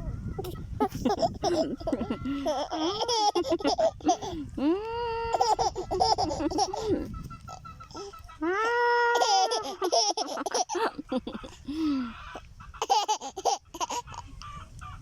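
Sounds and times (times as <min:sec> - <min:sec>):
baby laughing and babbling: 0:00.4 - 0:08.1, 0:09.0 - 0:11.6, 0:12.8 - 0:14.5.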